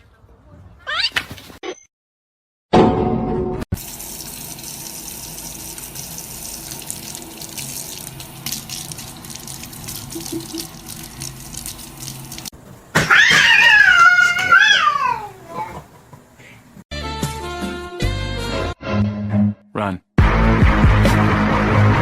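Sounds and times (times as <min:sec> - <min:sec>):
small splashes and clicks: 0:06.6 - 0:12.5.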